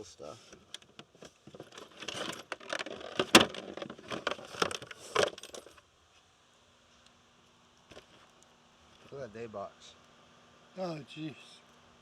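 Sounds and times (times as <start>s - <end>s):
fishing tackle rattling and clinking: 1.6s - 5.8s.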